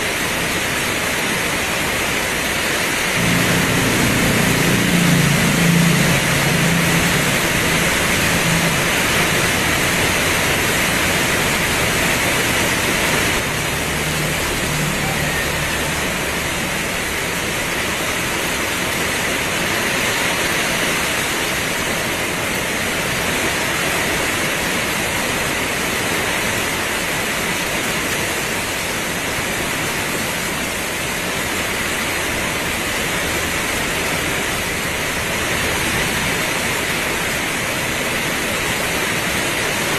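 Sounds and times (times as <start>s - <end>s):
heavy rain pouring: 0.0s - 39.9s
low hum: 3.2s - 18.2s.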